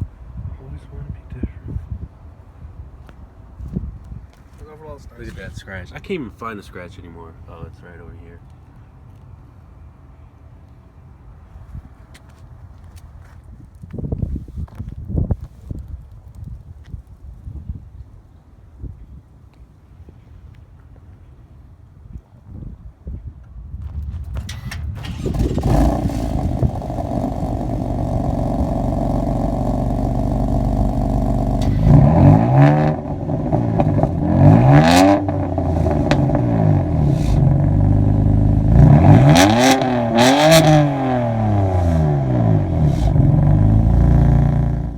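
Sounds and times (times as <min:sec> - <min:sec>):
car engine idling: 0:24.5 - 0:44.9
car engine revving: 0:25.0 - 0:44.9.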